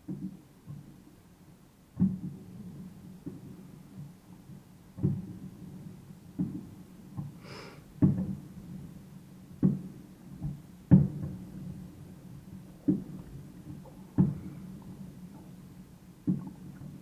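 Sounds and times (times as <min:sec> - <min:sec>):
brief hiss: 0:07.4 - 0:07.8.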